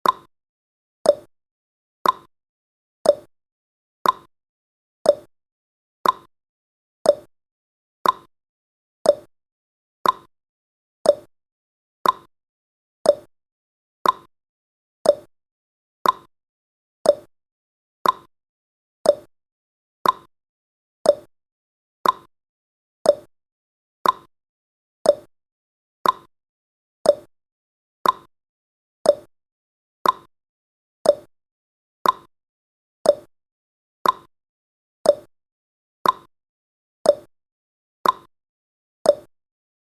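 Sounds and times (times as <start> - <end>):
timer ticking: 0.0 - 0.3, 1.1 - 1.3, 2.0 - 2.3, 3.0 - 3.3, 4.0 - 4.3, 5.1 - 5.3, 6.0 - 6.3, 7.0 - 7.3, 8.0 - 8.3, 9.0 - 9.3, 10.0 - 10.3, 11.0 - 11.3, 12.0 - 12.3, 13.0 - 13.3, 14.0 - 14.3, 15.0 - 15.3, 16.0 - 16.3, 17.0 - 17.3, 18.0 - 18.3, 19.0 - 19.3, 20.0 - 20.3, 21.0 - 21.3, 22.0 - 22.3, 23.0 - 23.3, 24.0 - 24.3, 25.0 - 25.3, 26.0 - 26.3, 27.0 - 27.3, 28.0 - 28.3, 29.0 - 29.3, 30.0 - 30.3, 31.0 - 31.3, 32.0 - 32.3, 33.0 - 33.3, 34.0 - 34.3, 35.0 - 35.3, 36.0 - 36.3, 37.1 - 37.3, 38.0 - 38.3, 39.1 - 39.3.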